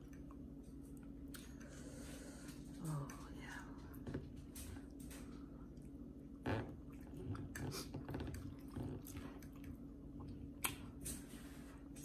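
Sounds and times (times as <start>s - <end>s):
person chewing food: 0.0s - 2.8s, 4.8s - 11.2s.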